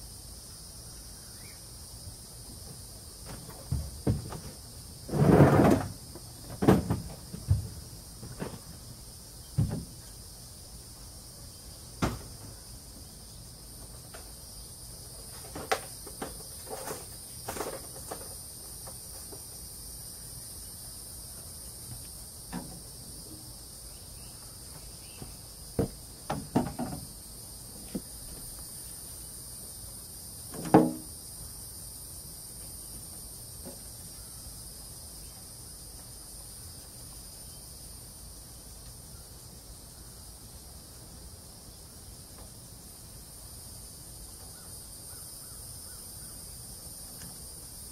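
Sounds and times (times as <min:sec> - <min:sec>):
high insect drone: 0:00.0 - 0:47.9
knocks and clanks on metal: 0:03.2 - 0:04.6, 0:06.5 - 0:08.7, 0:25.2 - 0:27.1, 0:30.5 - 0:31.1.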